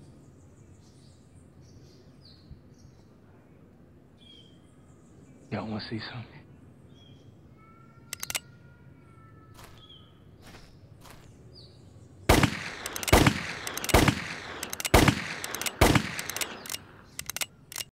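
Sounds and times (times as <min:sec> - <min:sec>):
small clicking: 0:08.1 - 0:08.4, 0:12.3 - 0:17.9
gunshots ringing out: 0:12.3 - 0:17.9.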